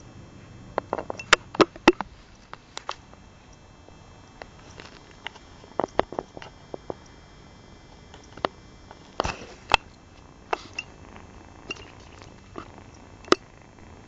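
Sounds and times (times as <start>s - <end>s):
kittens lapping milk: 10.5s - 13.4s.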